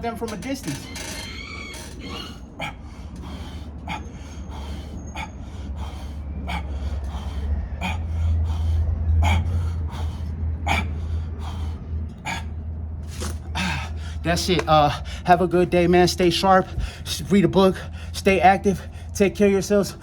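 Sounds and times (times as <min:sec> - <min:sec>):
low rumble: 0:00.0 - 0:20.0
man gasping for breath: 0:02.6 - 0:12.6.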